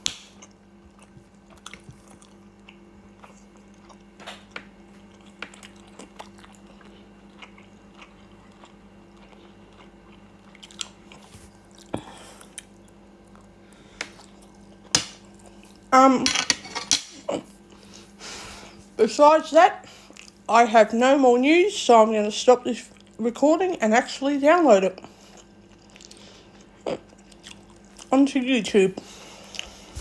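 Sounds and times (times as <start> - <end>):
person chewing and crunching: 0.0 - 15.9, 20.0 - 20.5, 25.2 - 28.1.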